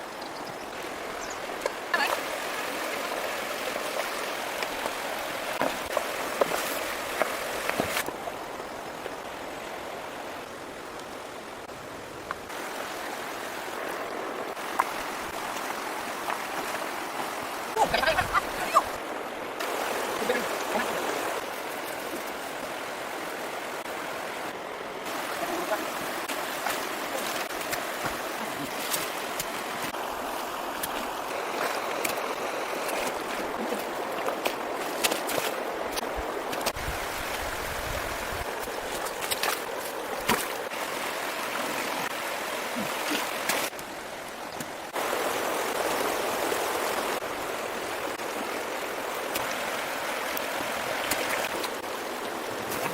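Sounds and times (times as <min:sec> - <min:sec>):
water rushing and splashing: 0:00.0 - 0:52.9
sharp splashes or knocks: 0:38.6 - 0:40.7.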